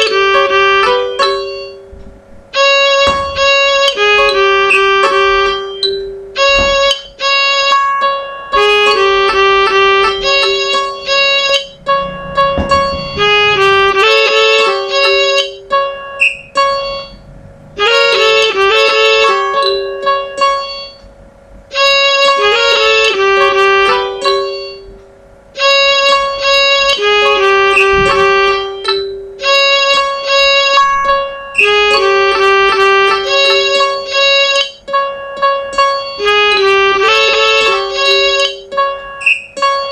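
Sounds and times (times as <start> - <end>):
computer midi music: 0.0 - 39.9.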